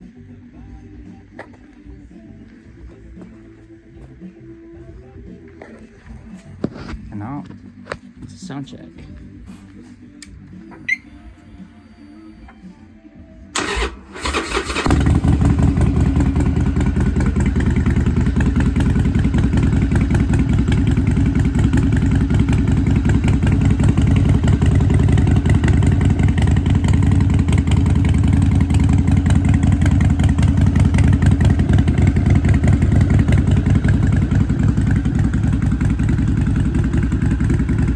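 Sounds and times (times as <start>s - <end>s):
motorcycle starter cranking: 13.6s - 20.5s
motorcycle engine idling: 13.6s - 37.9s.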